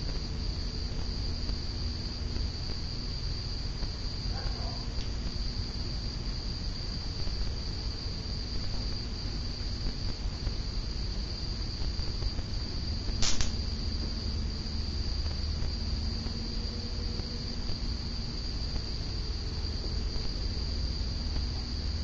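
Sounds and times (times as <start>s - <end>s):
ceiling fan humming: 0.0s - 22.0s
sharp click: 13.2s - 13.7s.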